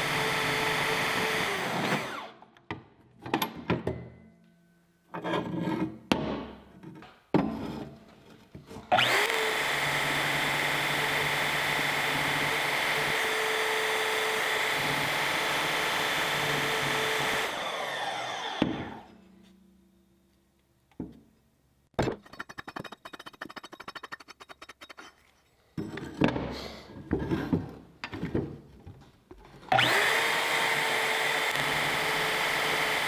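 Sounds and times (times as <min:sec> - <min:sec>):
power tool cutting steel: 0:00.0 - 0:02.4, 0:08.9 - 0:19.1, 0:29.7 - 0:33.0.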